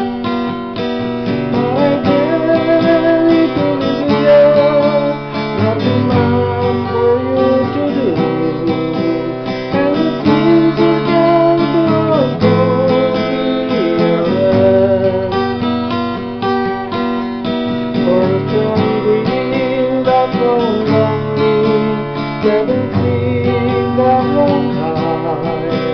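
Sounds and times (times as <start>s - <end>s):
acoustic guitar strumming: 0.0s - 25.9s
gliding melody line: 1.4s - 15.6s.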